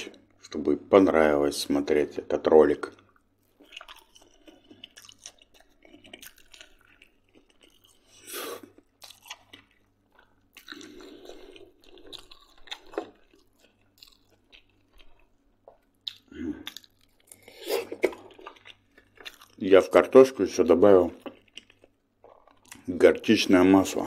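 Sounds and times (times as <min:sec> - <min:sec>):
person chewing food: 0:02.9 - 0:19.7, 0:21.0 - 0:23.0.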